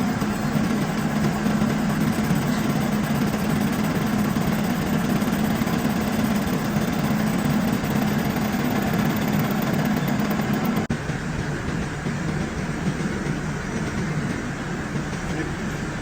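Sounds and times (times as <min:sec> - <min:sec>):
metal lathe motor humming: 0:00.0 - 0:10.9.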